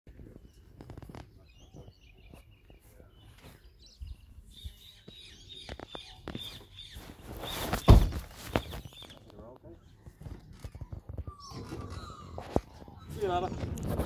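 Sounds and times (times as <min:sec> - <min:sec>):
low outdoor background noise: 0:00.1 - 0:14.0
faint bird chirps: 0:00.3 - 0:13.5.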